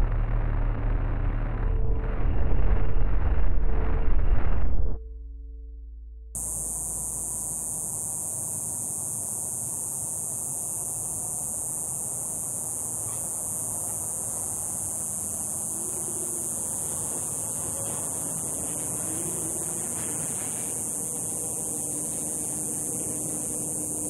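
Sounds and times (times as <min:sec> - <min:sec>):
low rumble: 0:00.0 - 0:07.3
high-pitched hiss: 0:06.4 - 0:24.0.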